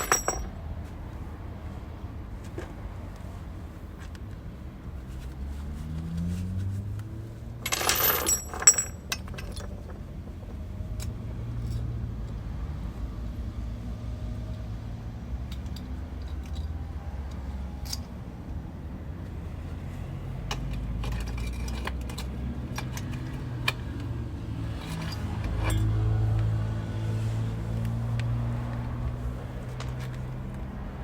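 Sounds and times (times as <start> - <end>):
metal clink: 0.0 - 0.5, 7.6 - 9.8
metal tools rattling and scraping: 0.0 - 0.5, 7.6 - 10.1, 20.5 - 24.0, 24.7 - 26.0.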